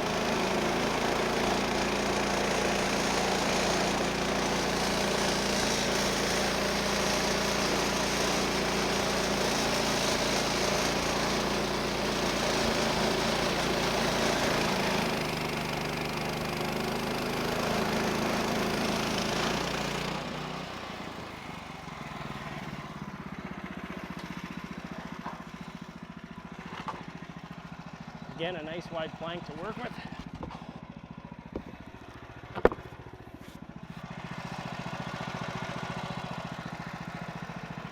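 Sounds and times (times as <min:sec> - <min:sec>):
band saw cutting log: 0:00.0 - 0:23.0, 0:28.4 - 0:30.8
engine running: 0:00.0 - 0:37.9
engine idling: 0:18.7 - 0:37.9.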